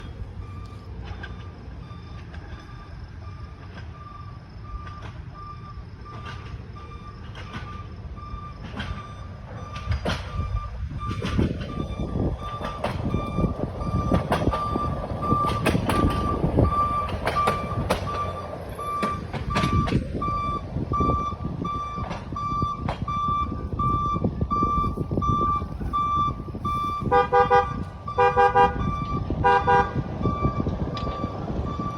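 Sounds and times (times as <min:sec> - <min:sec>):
truck rumbling on rails: 0:00.0 - 0:31.9
electronic beeping: 0:10.4 - 0:28.2
truck horn blasts: 0:26.9 - 0:30.1.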